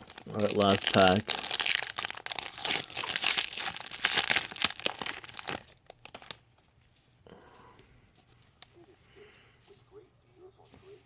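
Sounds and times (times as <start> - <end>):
card pack wrapper tearing and crinkling: 0.0 - 6.4.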